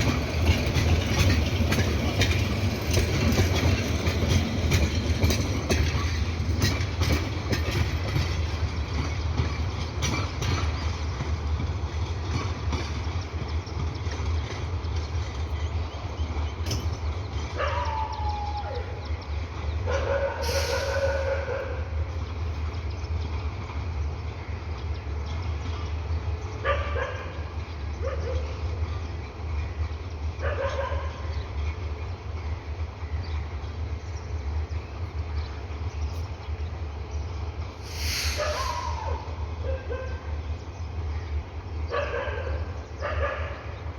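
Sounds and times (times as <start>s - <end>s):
wheels clicking over rails: 0.0s - 18.0s
train low rumble: 0.0s - 43.9s
dog barking: 19.9s - 21.8s, 26.6s - 27.4s, 30.4s - 31.2s, 39.6s - 40.2s, 41.9s - 43.6s.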